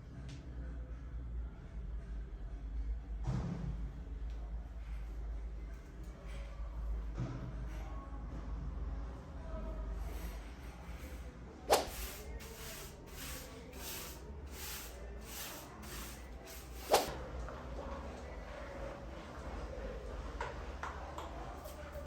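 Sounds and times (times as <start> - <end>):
swishing cleaning strokes: 11.7 - 17.2.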